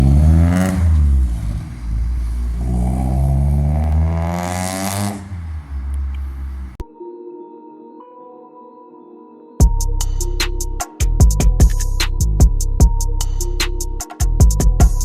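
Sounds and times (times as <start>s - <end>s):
car engine revving: 0.0s - 6.8s.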